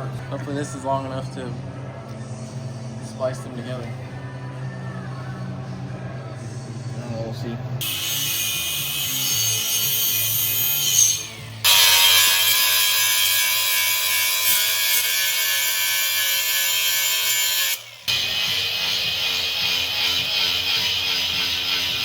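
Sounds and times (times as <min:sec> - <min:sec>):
background music: 0:00.0 - 0:22.0
power tool grinding steel: 0:07.8 - 0:22.0.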